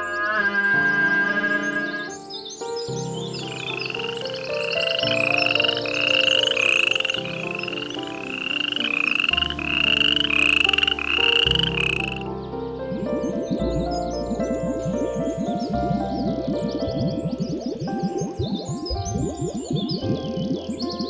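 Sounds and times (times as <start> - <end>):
animal making buzzy rising calls: 0.0 - 2.2
background music with bass: 9.0 - 21.0.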